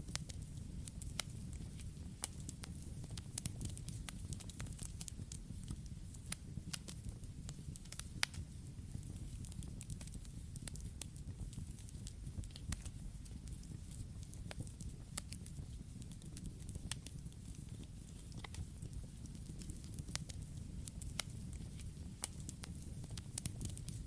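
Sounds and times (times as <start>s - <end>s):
burning wood crackling and popping: 0.0s - 24.0s
low rumble of flames: 0.0s - 24.0s.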